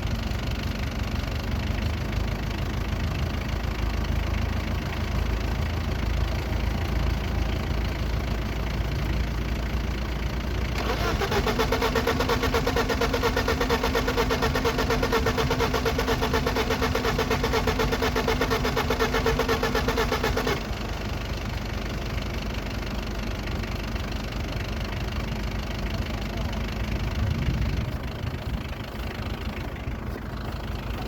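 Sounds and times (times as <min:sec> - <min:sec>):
engine starter motor cranking: 0:10.7 - 0:21.2.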